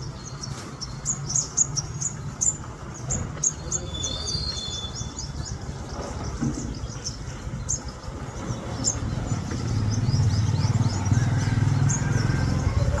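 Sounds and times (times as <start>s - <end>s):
small birds chirping: 0.0s - 13.0s
vehicle engine running: 0.0s - 13.0s.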